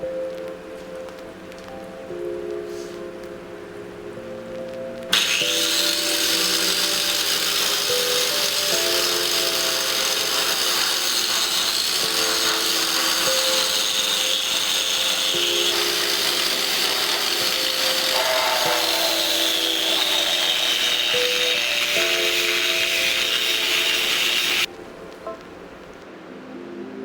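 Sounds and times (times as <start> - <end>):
lofi background music: 0.0 - 6.9, 12.0 - 27.0
angle grinder whining on metal: 5.1 - 24.7.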